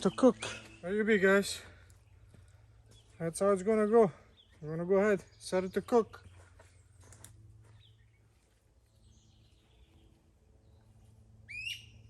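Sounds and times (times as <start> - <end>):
bird call upward sweeping: 11.4 - 12.0.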